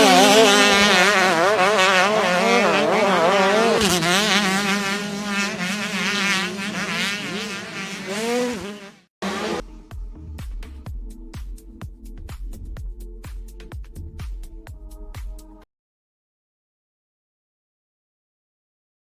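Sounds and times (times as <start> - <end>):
motocross bike engine revving: 0.0 - 9.6.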